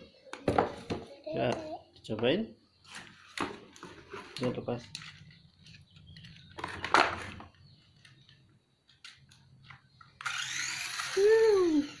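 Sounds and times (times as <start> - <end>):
small electric motor whirring: 10.1 - 12.0.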